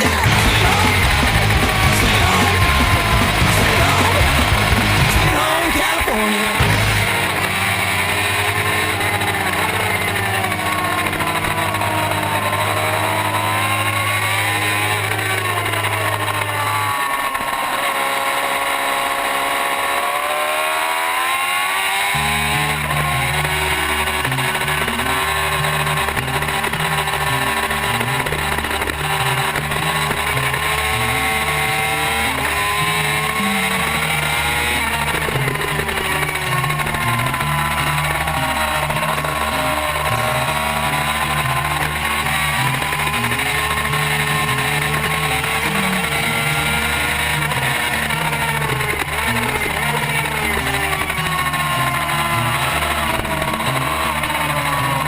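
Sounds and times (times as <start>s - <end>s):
steady rushing noise: 0.0s - 18.0s
motorcycle engine revving: 0.0s - 55.0s.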